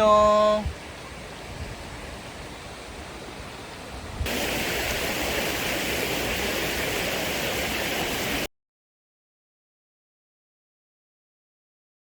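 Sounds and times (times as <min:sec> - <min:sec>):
stream water rushing: 0:00.0 - 0:08.5.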